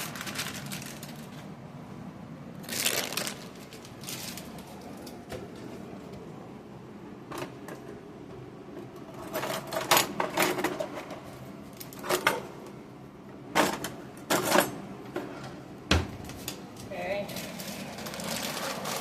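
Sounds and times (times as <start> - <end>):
noodle bag rustling and crinkling: 0.0 - 1.5, 2.6 - 4.8, 17.2 - 19.0.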